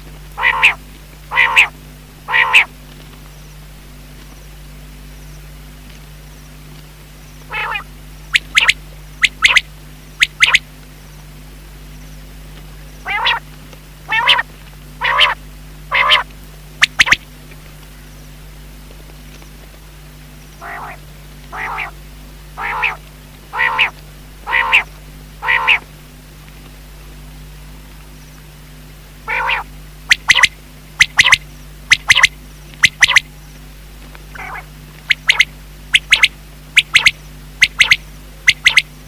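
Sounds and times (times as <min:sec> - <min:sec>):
steady low hum: 0:00.0 - 0:39.0
quail calling: 0:00.4 - 0:02.7, 0:07.5 - 0:10.6, 0:13.0 - 0:13.4, 0:14.1 - 0:17.2, 0:20.6 - 0:22.0, 0:22.6 - 0:25.9, 0:29.2 - 0:33.3, 0:34.3 - 0:39.0.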